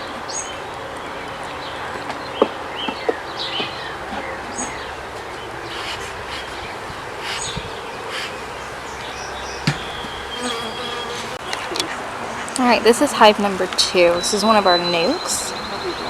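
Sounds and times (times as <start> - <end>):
honey bees buzzing: 0.0 - 16.0
sharp knocks: 9.6 - 9.9.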